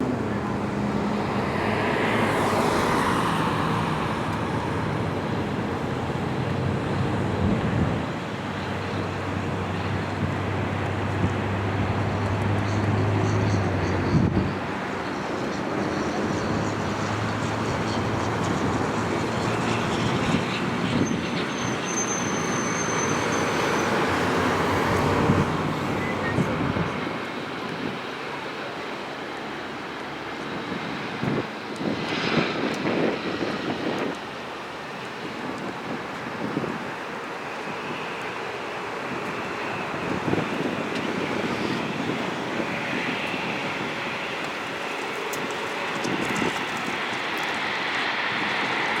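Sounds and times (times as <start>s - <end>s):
jet engines roaring and whining: 0.0s - 49.0s.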